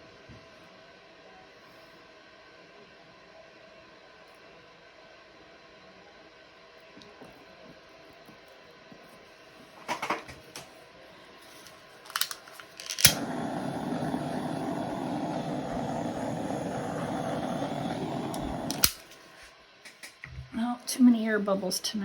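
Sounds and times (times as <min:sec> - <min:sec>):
light handling clicks: 0:12.1 - 0:13.4, 0:18.2 - 0:19.2
hairdryer blowing: 0:12.2 - 0:19.2
hairdryer switch click: 0:18.2 - 0:19.2.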